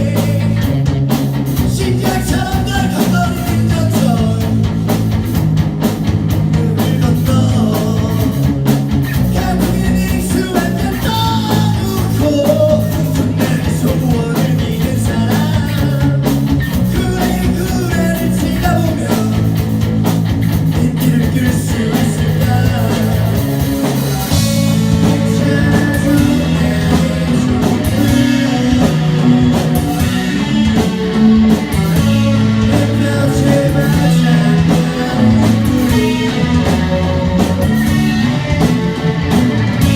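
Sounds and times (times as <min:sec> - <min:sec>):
bass guitar: 0:00.0 - 0:39.9
drums: 0:00.0 - 0:39.9
electric guitars: 0:00.0 - 0:39.9
person singing: 0:01.7 - 0:04.6, 0:09.2 - 0:19.5, 0:20.7 - 0:38.6.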